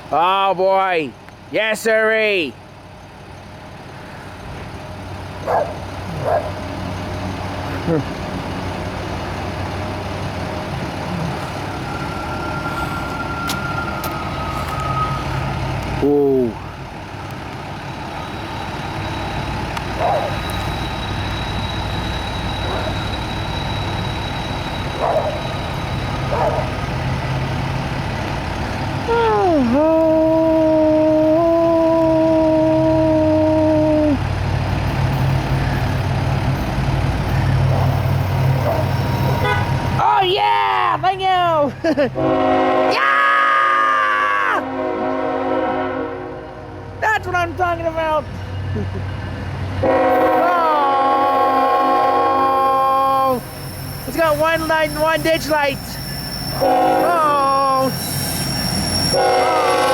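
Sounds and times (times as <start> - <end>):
diesel locomotive engine rumble: 0.0 - 59.9
locomotive air horn: 39.1 - 39.9, 42.2 - 43.0, 44.6 - 47.0, 49.8 - 53.4, 54.1 - 59.9.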